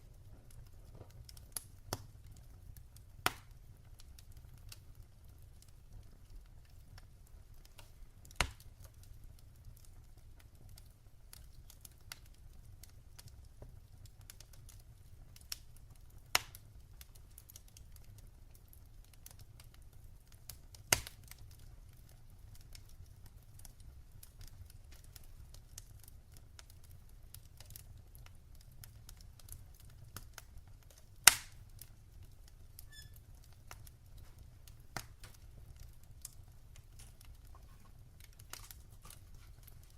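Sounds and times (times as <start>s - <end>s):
fire crackling: 0.0s - 39.9s
low fire rumble: 0.0s - 39.9s
sharp fire pops: 3.0s - 4.8s, 6.9s - 9.0s, 16.3s - 16.7s, 20.5s - 21.6s, 29.1s - 31.9s, 32.7s - 39.9s.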